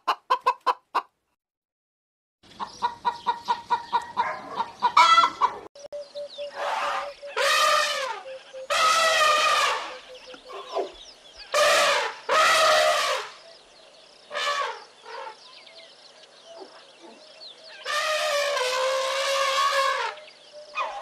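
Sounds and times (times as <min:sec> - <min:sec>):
drawn-out animal cries: 0:06.5 - 0:11.0.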